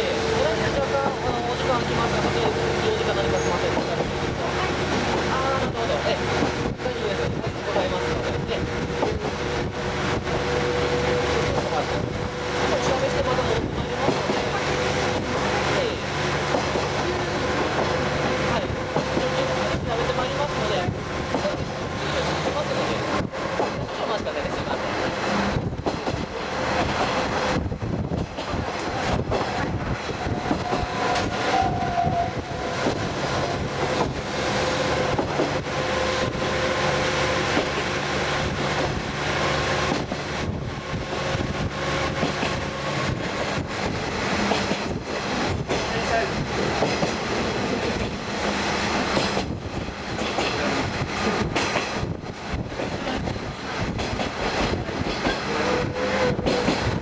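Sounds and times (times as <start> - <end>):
train wheels and wind noise: 0.0 - 57.0.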